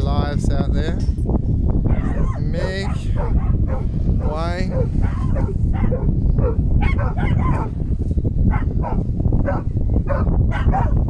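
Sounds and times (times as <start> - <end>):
wind rumble on microphone: 0.0 - 11.0
dog yipping and whimpering: 1.9 - 2.4, 4.7 - 7.7.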